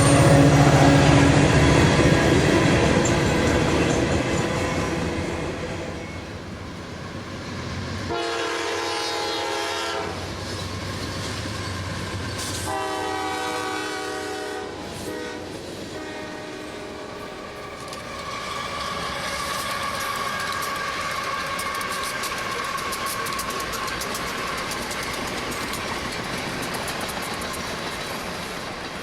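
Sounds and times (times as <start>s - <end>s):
train horn blasts: 0.0s - 2.0s, 8.1s - 10.3s, 12.4s - 24.5s
steady high tone: 0.0s - 3.7s
train running with wheels clicking: 0.0s - 29.0s.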